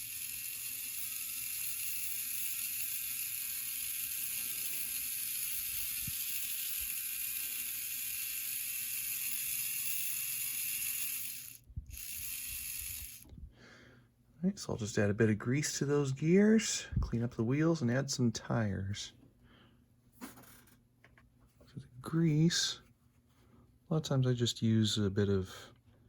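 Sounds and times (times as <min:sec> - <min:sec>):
model locomotive gears whirring: 0:00.0 - 0:13.3.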